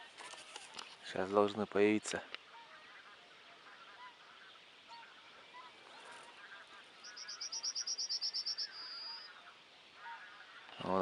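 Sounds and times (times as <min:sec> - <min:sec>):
geese honking: 0:02.4 - 0:11.0
small bird trilling: 0:07.0 - 0:09.3.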